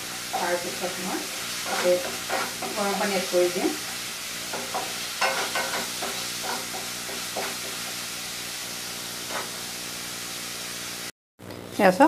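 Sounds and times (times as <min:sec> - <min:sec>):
paste sizzling in hot oil: 0:00.0 - 0:11.1
spatula stirring: 0:01.4 - 0:07.8.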